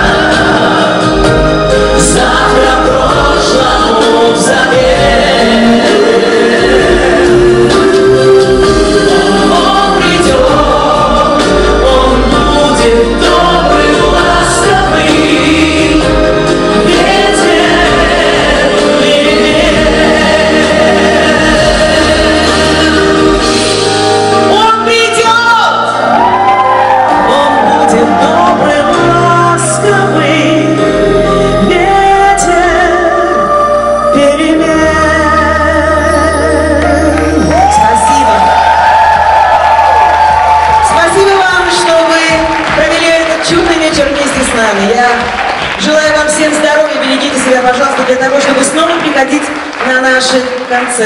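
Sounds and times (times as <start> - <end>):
solo voice singing with vibrato: 0.0 - 23.9, 26.8 - 38.4
group of voices singing: 0.0 - 24.6, 25.6 - 42.5
pop band playing: 0.0 - 51.0.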